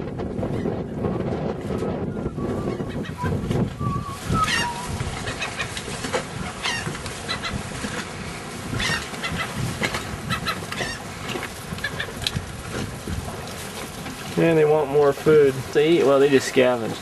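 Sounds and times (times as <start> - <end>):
surf: 0.0 - 17.0
wind: 0.0 - 17.0
birds calling: 2.1 - 12.4.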